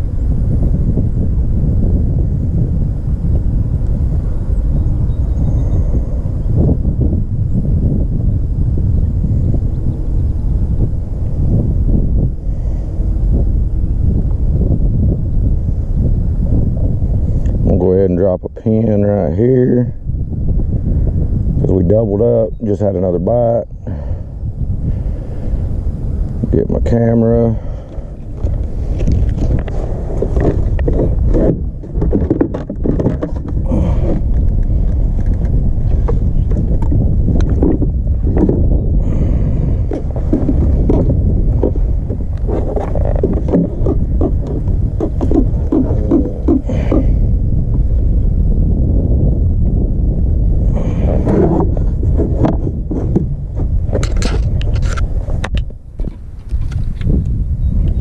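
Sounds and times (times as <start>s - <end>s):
wind buffeting microphone: 0.0s - 58.0s
handling clicks and knocks: 28.4s - 35.5s.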